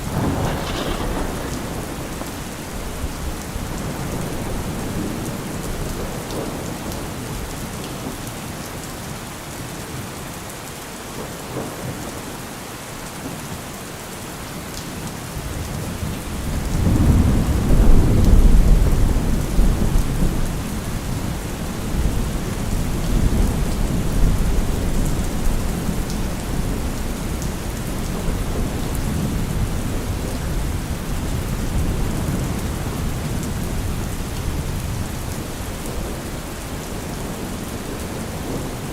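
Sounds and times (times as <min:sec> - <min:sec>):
low thunder rumble: 0:00.0 - 0:07.5, 0:16.0 - 0:38.9
steady rain falling: 0:00.0 - 0:38.9.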